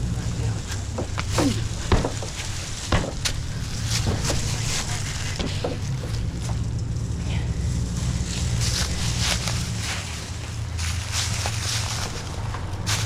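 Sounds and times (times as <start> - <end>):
engine idling: 0.0 - 13.0
sharp clicks and knocks: 5.3 - 7.0.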